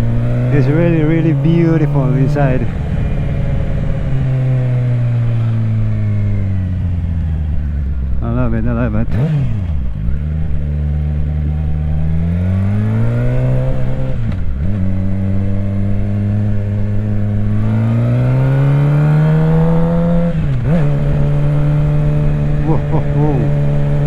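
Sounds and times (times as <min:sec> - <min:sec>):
motorcycle engine pulling through gears: 0:09.1 - 0:24.0.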